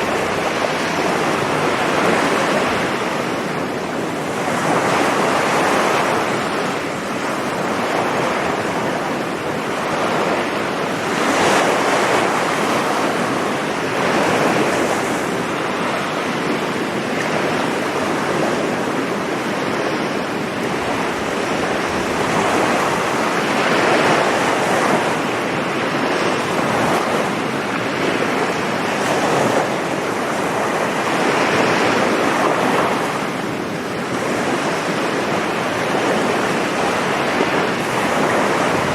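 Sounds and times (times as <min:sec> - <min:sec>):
ocean surf breaking on beach: 0:00.0 - 0:38.9
wind on microphone: 0:00.0 - 0:38.9.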